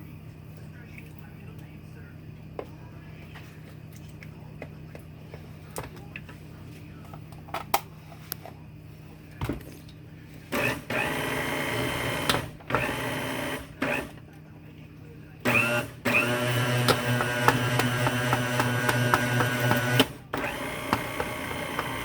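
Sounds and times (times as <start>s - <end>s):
blender pulsing: 10.5s - 14.2s, 15.5s - 22.0s.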